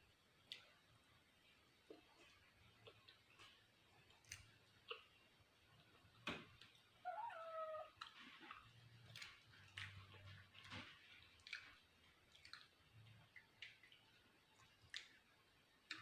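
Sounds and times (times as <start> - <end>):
cat meowing: 7.0 - 8.0.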